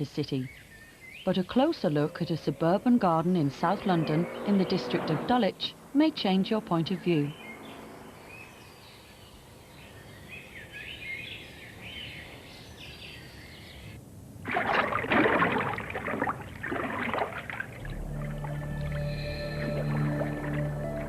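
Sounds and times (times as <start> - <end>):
birds singing: 0.0 - 14.0
low musical drone: 17.8 - 21.0.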